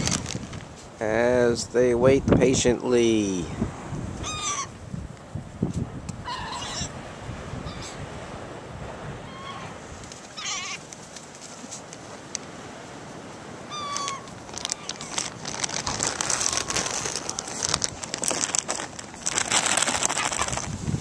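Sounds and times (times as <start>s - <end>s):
dense crackling and rustling: 0.0s - 0.9s, 14.2s - 21.0s
gulls mewing: 13.6s - 20.6s.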